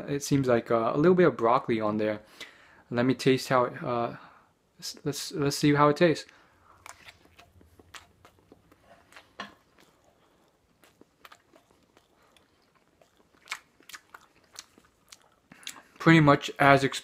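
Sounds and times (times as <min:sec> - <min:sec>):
wet mouth clicks and smacks: 0:06.8 - 0:15.9.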